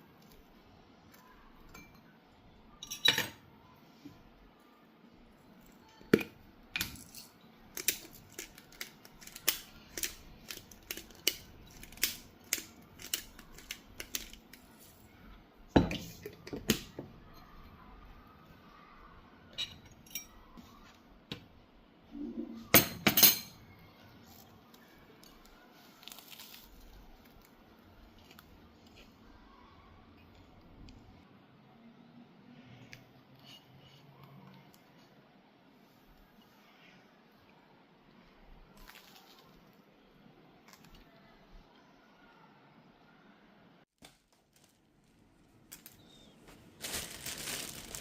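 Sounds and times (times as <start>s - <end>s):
utensils clicking and clinking: 6.1s - 14.6s.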